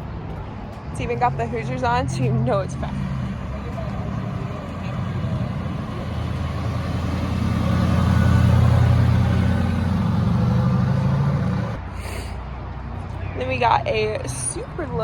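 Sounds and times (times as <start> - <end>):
car engine idling: 0.0 - 11.8.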